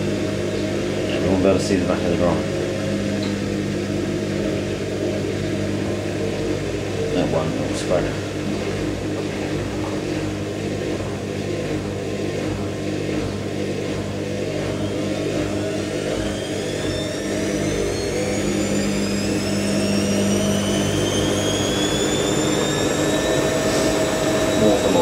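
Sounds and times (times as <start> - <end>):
washing machine spinning: 0.0 - 25.0.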